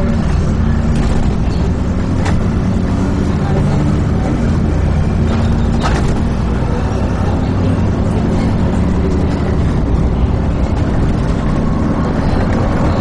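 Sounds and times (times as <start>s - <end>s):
bus diesel engine drone: 0.0s - 13.0s
road noise: 0.0s - 13.0s.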